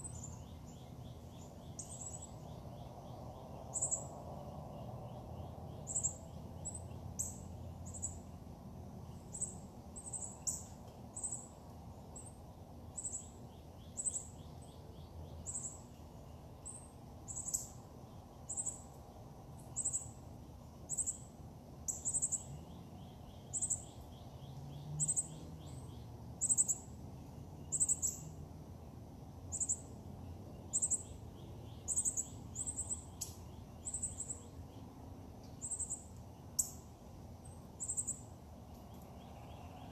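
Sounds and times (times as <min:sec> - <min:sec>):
bird high-pitched chirps: 0:00.0 - 0:04.2, 0:09.2 - 0:11.5, 0:16.6 - 0:17.8, 0:21.9 - 0:26.9, 0:27.7 - 0:28.4, 0:30.7 - 0:34.6.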